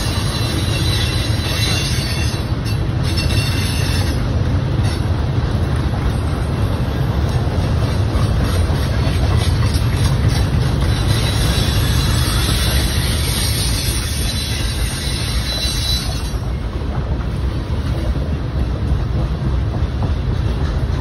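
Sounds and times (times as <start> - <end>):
high wheel squeal: 0.0 - 4.4, 9.4 - 16.6
train wheels rumbling on rails: 0.0 - 21.0.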